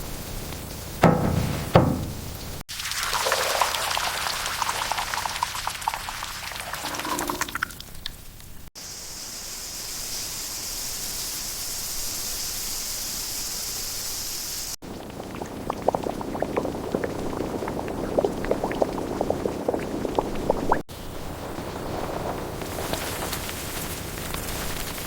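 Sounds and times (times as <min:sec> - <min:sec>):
pot boiling with pops: 0:00.5 - 0:08.7, 0:14.8 - 0:20.9
steady hiss: 0:08.3 - 0:14.8.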